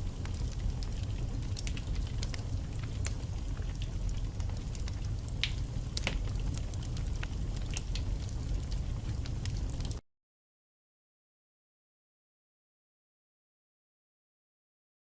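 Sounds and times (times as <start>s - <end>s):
burning logs crackling and popping: 0.0s - 10.0s
fire flames rumbling: 0.0s - 10.0s.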